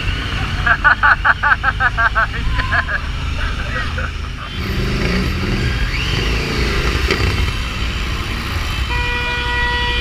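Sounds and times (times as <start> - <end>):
motorcycle engine: 0.0 - 9.5
road noise: 0.0 - 10.0
vehicle horn honking: 4.4 - 5.3, 8.8 - 10.0.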